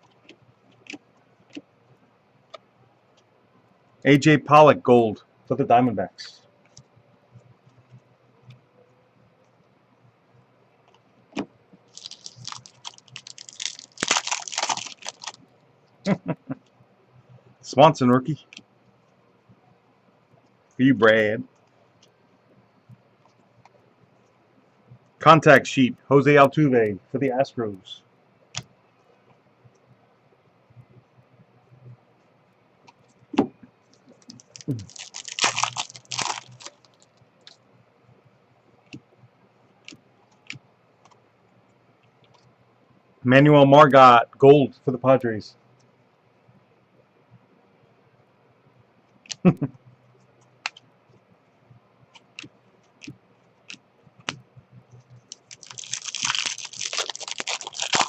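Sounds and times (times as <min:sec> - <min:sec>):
card pack wrapper crinkling: 0:11.9 - 0:15.4, 0:34.1 - 0:37.1, 0:55.3 - 0:58.0.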